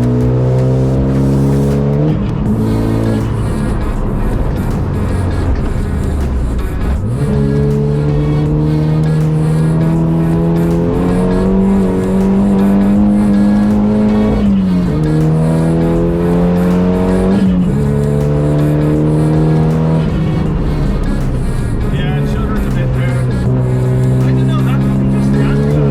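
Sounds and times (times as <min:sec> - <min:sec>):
car engine accelerating hard: 0:00.0 - 0:25.9
music: 0:00.0 - 0:25.9.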